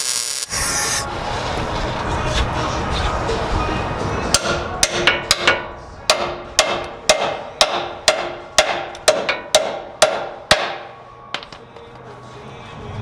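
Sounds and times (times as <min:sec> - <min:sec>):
hammer striking steel: 0:04.3 - 0:11.6.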